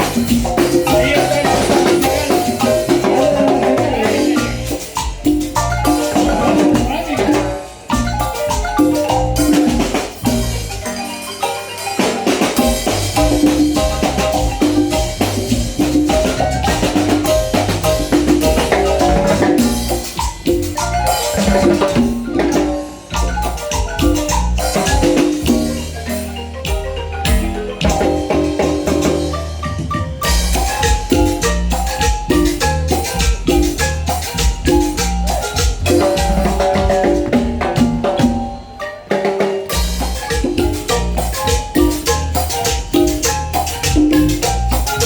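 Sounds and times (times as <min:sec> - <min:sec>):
steady bass line: 0:00.0 - 0:10.9, 0:12.6 - 0:38.4, 0:39.8 - 0:45.0
drum kit: 0:00.0 - 0:45.0
rapid marimba notes: 0:00.0 - 0:45.0.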